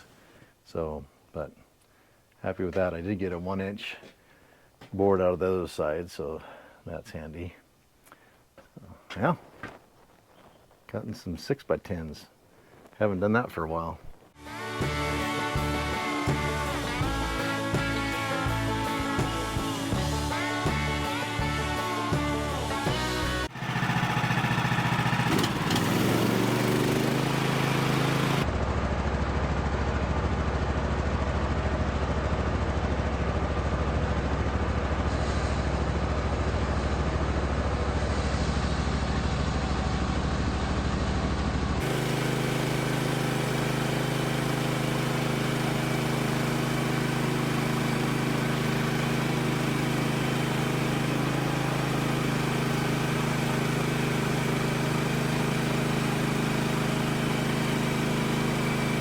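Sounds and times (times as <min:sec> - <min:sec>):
sawmill gasoline engine running: 0:13.0 - 0:59.0.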